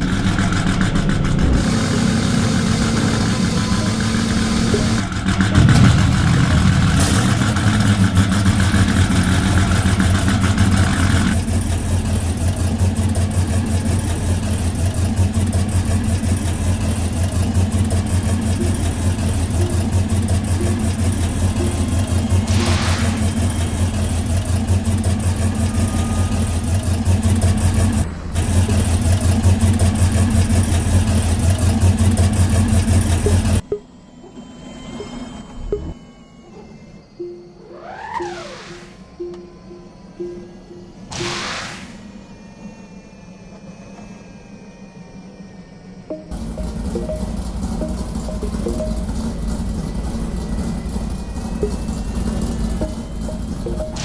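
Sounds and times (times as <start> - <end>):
car engine running: 0.0 - 33.6, 46.1 - 54.0.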